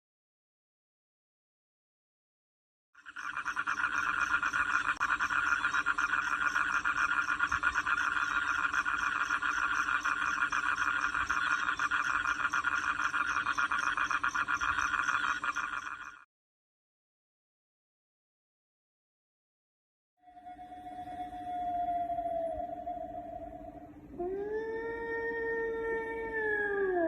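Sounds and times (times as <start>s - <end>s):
fast-pulsing animal trill: 3.0s - 16.2s.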